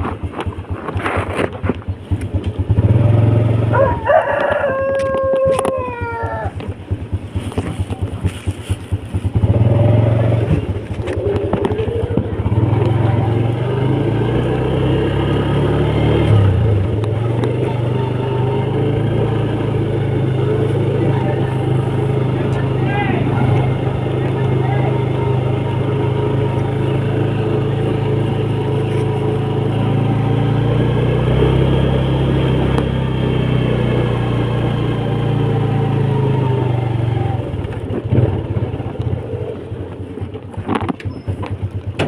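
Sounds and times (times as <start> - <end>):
small motorcycle engine running: 0.0 - 42.0
rooster crowing: 3.6 - 6.7.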